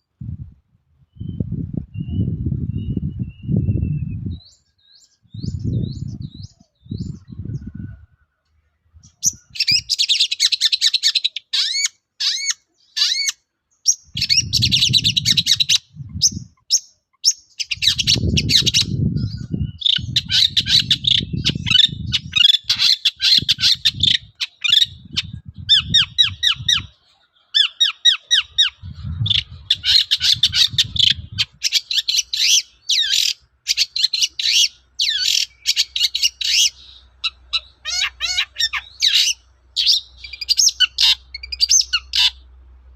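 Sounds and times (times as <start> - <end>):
low rumbles: 5.3 - 9.6, 14.2 - 16.6, 23.4 - 27.0, 28.4 - 31.6
bird singing harsh chattering notes: 9.0 - 42.5.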